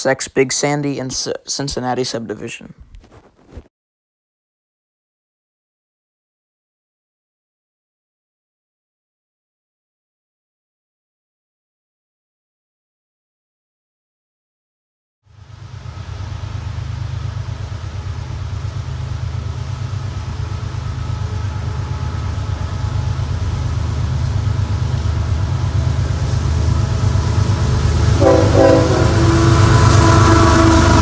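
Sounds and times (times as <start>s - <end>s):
train rumble: 15.3s - 31.0s
train air horn: 28.0s - 31.0s.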